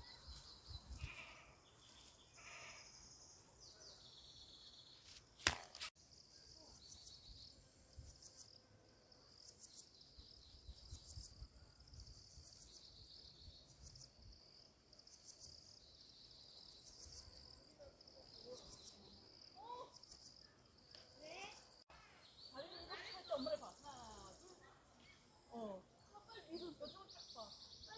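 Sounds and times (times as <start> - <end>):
high-pitched insect chirps: 9.2 - 14.4, 15.0 - 17.5, 18.3 - 21.8.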